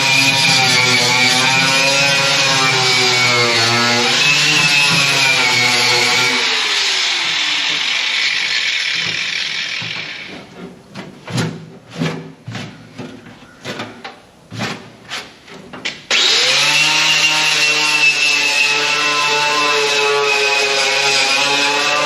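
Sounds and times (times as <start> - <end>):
electric grinder on sheet metal: 0.0 - 10.4, 16.1 - 22.0
sharp knocks and scrapes: 7.2 - 16.1.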